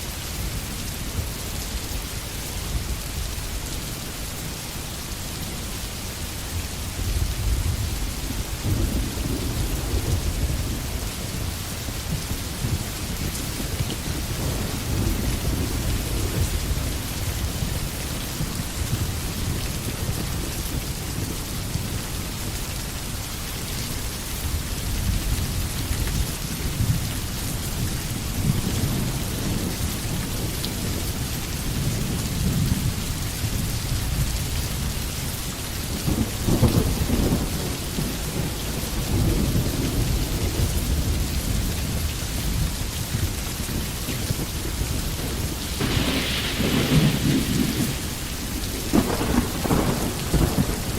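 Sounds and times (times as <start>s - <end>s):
steady rain falling: 0.0s - 50.9s
rumbling thunder: 7.0s - 21.3s, 35.9s - 50.9s.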